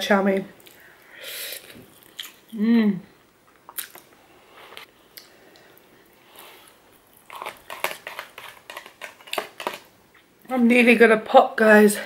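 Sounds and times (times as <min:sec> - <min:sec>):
fork scraping foil tray: 0:07.3 - 0:09.8.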